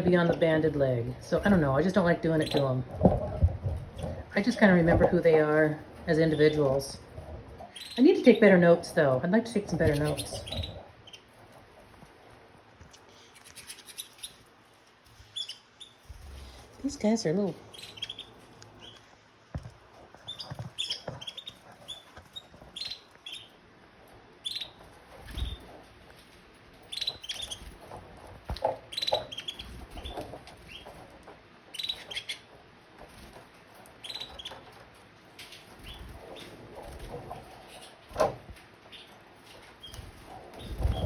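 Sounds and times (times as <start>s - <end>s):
canaries chirping: 0.0s - 41.0s
thumps: 2.8s - 5.6s.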